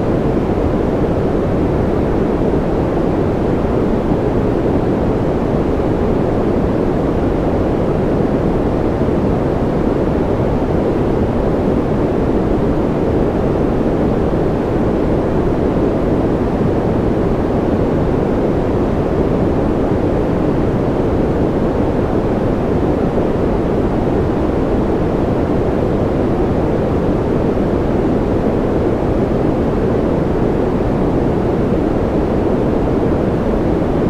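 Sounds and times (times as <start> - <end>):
white noise rush: 0.0 - 34.0.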